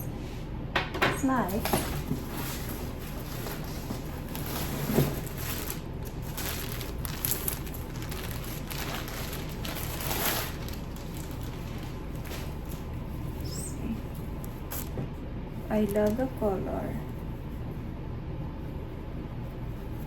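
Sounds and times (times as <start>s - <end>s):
steady low hum: 0.0s - 20.0s
packaging rustling: 1.6s - 13.6s.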